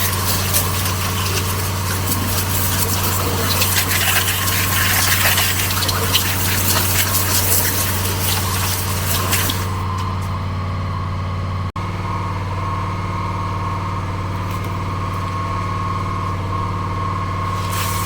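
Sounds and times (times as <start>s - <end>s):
water jet hissing: 0.0s - 10.5s, 14.2s - 18.0s
pressure washer pump hum: 0.0s - 18.0s.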